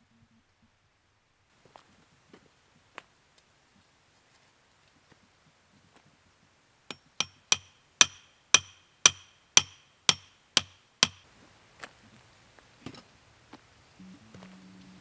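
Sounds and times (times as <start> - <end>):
hammer blows on metal: 6.9 - 11.2.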